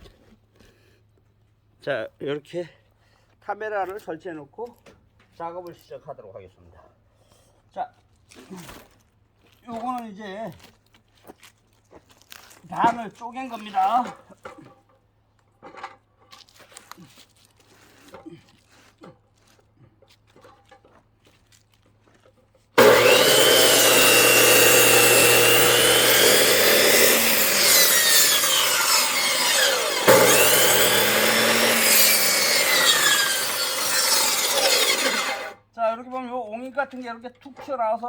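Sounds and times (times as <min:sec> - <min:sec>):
circular saw cutting log: 0:22.8 - 0:35.6.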